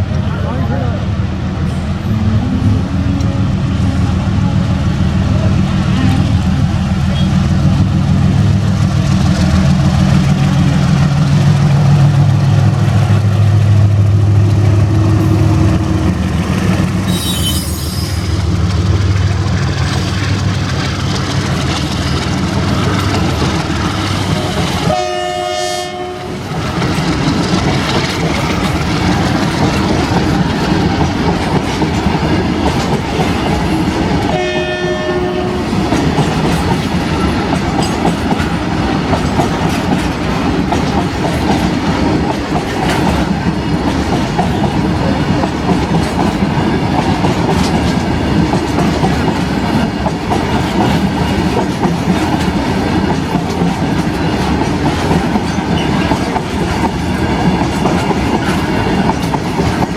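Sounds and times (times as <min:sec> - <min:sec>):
goods train rumbling past: 0:00.0 - 0:59.9
train horn: 0:17.1 - 0:18.2, 0:24.4 - 0:26.4, 0:34.3 - 0:35.8
wheels clattering over rail joints: 0:18.2 - 0:24.9, 0:26.5 - 0:34.4.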